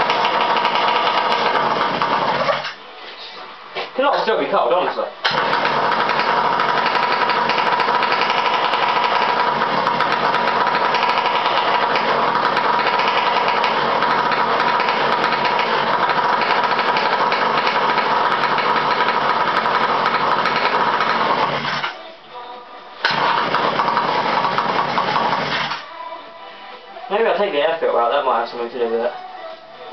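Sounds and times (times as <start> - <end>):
two-stroke engine running: 0.0 - 2.7, 5.2 - 21.9, 23.0 - 25.8.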